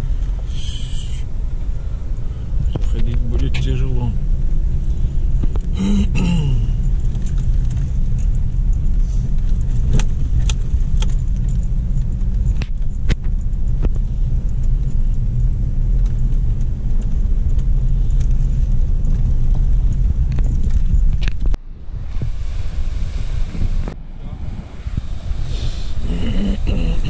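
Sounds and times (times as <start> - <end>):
wind buffeting microphone: 6.7 - 27.0
rough surf: 21.6 - 27.0.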